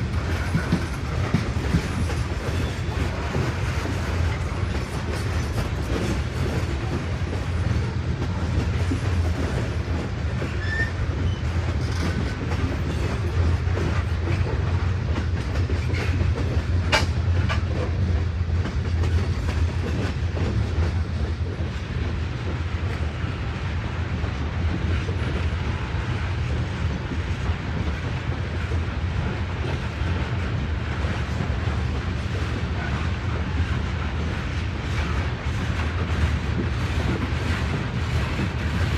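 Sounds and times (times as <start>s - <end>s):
wheels clacking over rail joints: 0.0s - 23.3s
railroad cars rumbling: 0.0s - 38.9s.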